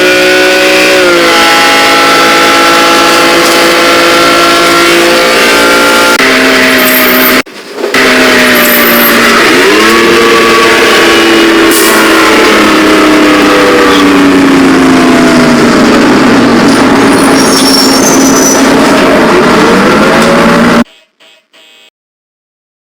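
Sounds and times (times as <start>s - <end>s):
loud vehicle engine revving: 0.0s - 20.9s.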